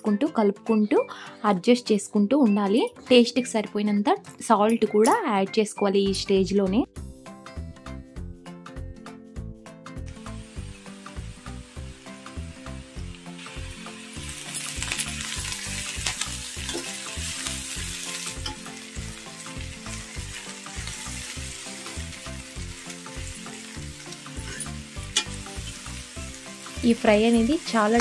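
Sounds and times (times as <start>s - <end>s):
soft background music: 0.0s - 28.0s
onions sizzling in oil: 10.1s - 28.0s
steel spoon scraping pan: 24.4s - 25.8s.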